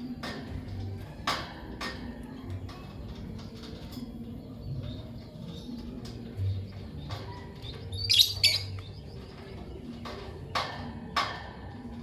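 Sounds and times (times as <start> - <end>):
lovebirds chirping: 4.0 - 12.0.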